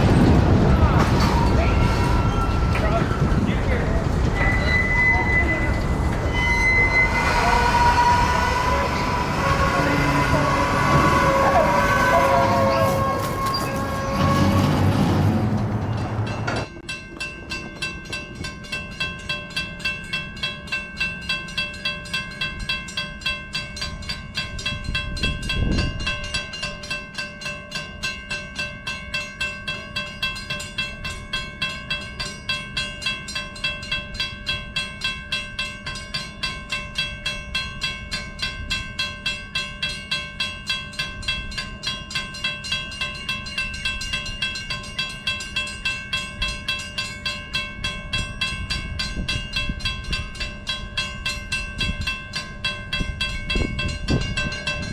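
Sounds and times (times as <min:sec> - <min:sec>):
train wheels clicking: 0:00.0 - 0:20.3
high ringing tone: 0:04.4 - 0:08.9.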